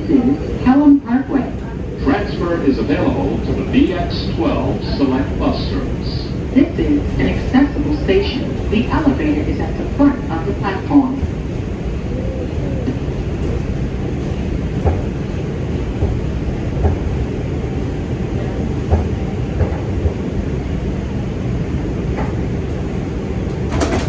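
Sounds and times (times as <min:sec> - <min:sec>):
subway car rumble and hiss: 0:00.0 - 0:24.0
light clicks from train car: 0:14.2 - 0:17.2, 0:18.8 - 0:20.2, 0:22.1 - 0:24.0.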